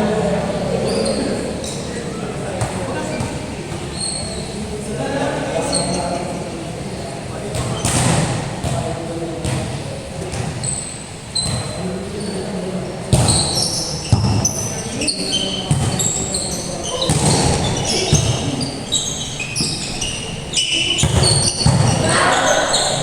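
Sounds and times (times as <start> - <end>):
sneakers squeaking on floor: 0.7 - 4.9, 5.6 - 23.0
basketball bouncing: 7.5 - 10.7, 13.1 - 14.6, 15.7 - 20.0, 20.8 - 22.1.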